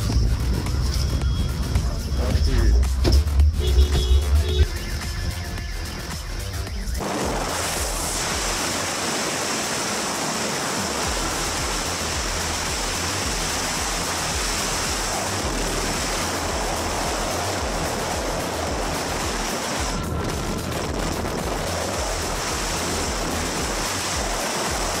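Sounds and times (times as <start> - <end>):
rushing water: 7.0 - 25.0.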